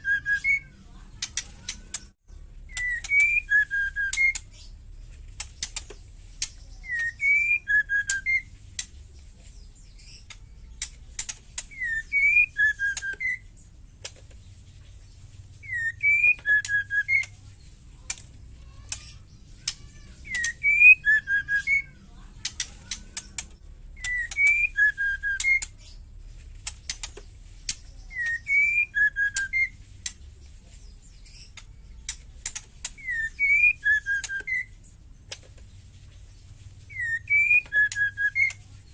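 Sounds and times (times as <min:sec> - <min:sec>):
bird whistled phrase: 0:00.0 - 0:00.8, 0:02.7 - 0:04.4, 0:06.8 - 0:08.5, 0:11.7 - 0:13.5, 0:15.6 - 0:17.3, 0:19.6 - 0:22.0, 0:24.0 - 0:25.7, 0:28.0 - 0:29.8, 0:33.0 - 0:34.8, 0:36.9 - 0:38.6
bird ticking rattle calls: 0:00.0 - 0:09.2, 0:09.8 - 0:38.9.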